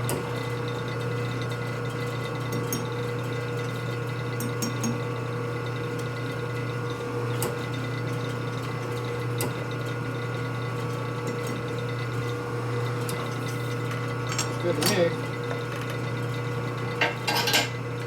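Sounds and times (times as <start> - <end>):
machine shop equipment humming: 5.2 - 18.0.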